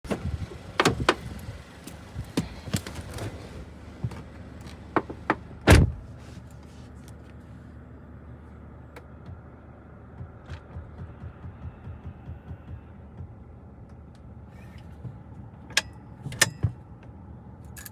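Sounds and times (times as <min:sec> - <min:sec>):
clicks and knocks in a car: 0:00.1 - 0:06.0, 0:10.1 - 0:17.1
car door thump: 0:05.0 - 0:06.0.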